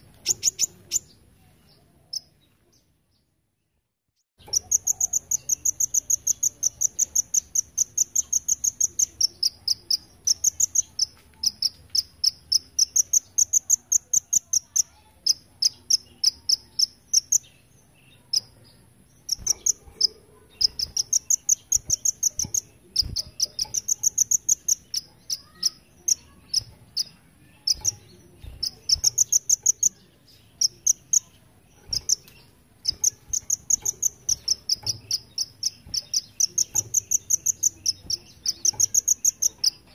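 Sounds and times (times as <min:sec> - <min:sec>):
bird singing high pulsed trills: 0:19.2 - 0:39.9.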